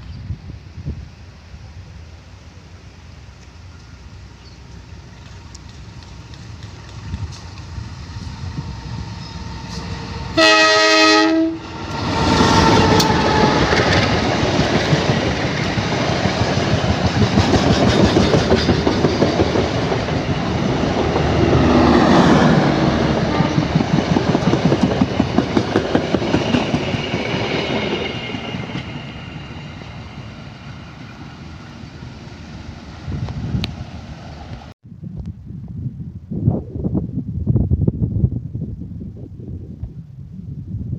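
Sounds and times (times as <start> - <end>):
locomotive horn blast: 9.2 - 14.2
train wheels clattering over rail joints: 12.6 - 21.8.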